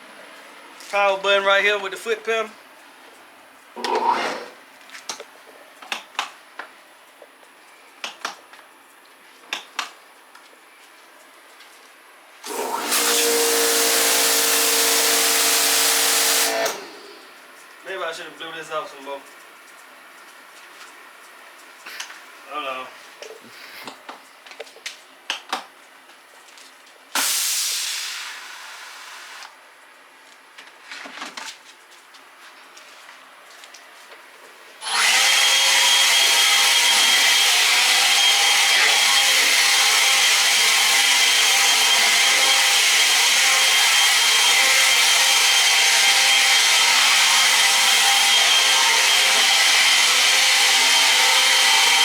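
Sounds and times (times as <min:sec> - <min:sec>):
pressure washer spray hissing: 0:12.5 - 0:17.2, 0:27.2 - 0:29.4.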